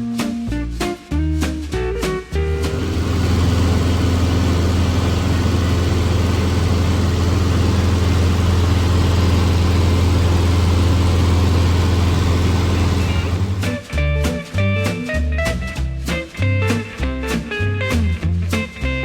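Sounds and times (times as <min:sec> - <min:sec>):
small plane engine and propeller: 0:02.4 - 0:13.8.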